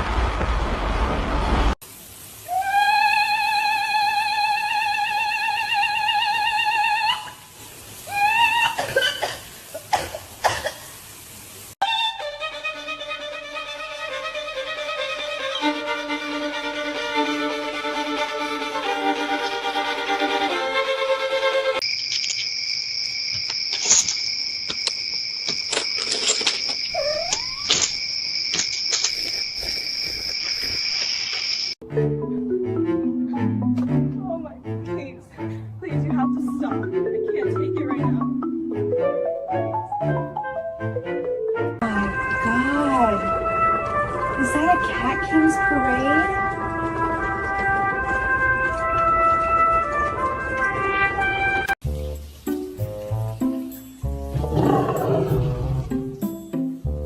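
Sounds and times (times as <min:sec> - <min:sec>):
violin playing: 0:11.8 - 0:21.8, 0:41.8 - 0:51.8
high insect trill: 0:21.4 - 0:31.8
small clicks: 0:22.0 - 0:22.5.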